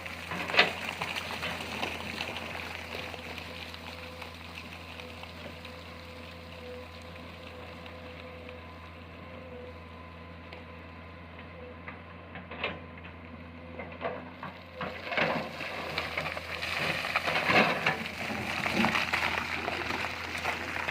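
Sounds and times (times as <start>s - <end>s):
excavator humming: 0.0s - 20.9s
crackling rattle: 14.7s - 20.9s.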